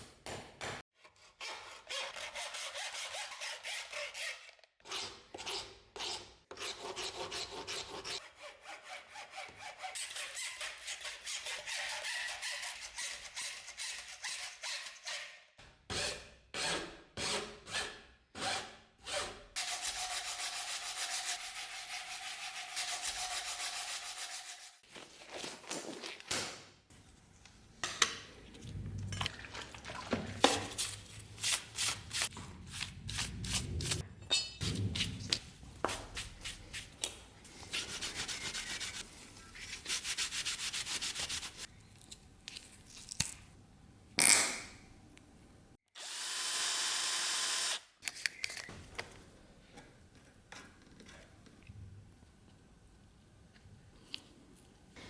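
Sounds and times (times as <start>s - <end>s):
file scraping on knife: 1.0s - 17.4s, 37.6s - 41.7s.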